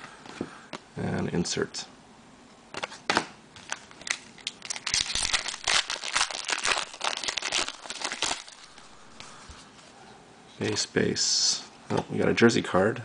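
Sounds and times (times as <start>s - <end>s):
foil pack tearing and crinkling: 3.6s - 8.8s.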